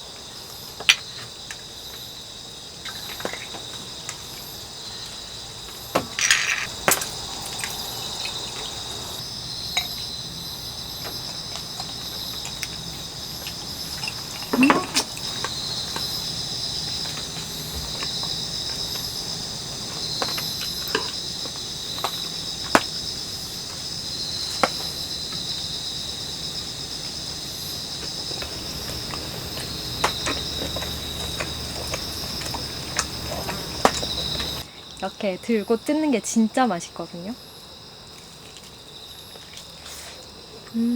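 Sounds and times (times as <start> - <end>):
crickets chirring: 0.0 - 40.9
utensils and dishes clinking: 6.1 - 7.8, 13.9 - 15.5.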